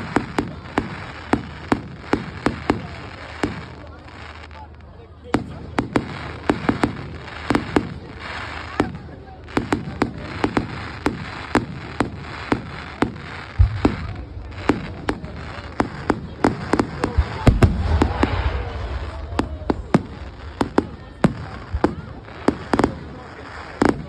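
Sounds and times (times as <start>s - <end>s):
firework bangs and cracks: 0.0s - 24.0s
deep firework booms: 9.6s - 24.0s
rumble: 17.5s - 21.8s.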